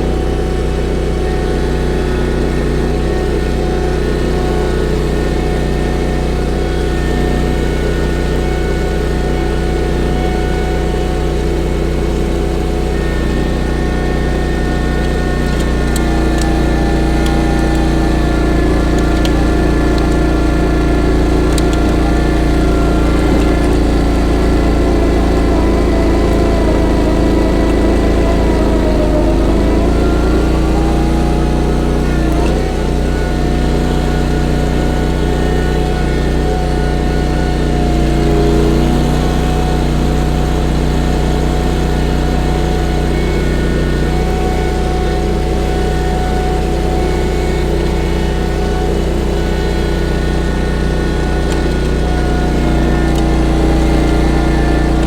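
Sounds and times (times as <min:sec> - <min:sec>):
gasoline engine running: 0:00.0 - 0:55.0.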